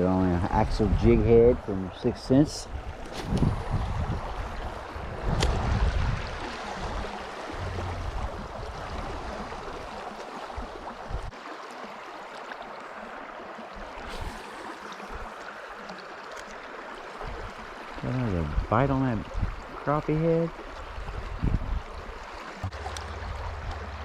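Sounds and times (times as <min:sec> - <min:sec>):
river water flowing: 0:01.6 - 0:24.0
low microphone rumble: 0:07.5 - 0:09.4, 0:22.6 - 0:24.0.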